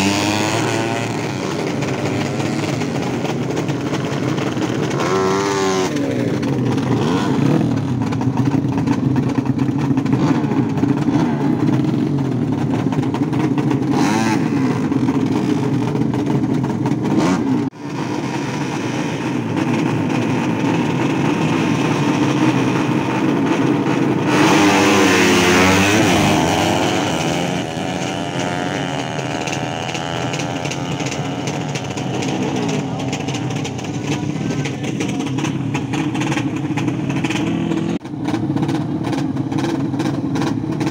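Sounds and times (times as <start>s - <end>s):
racing motorcycle engines revving: 0.0s - 40.9s.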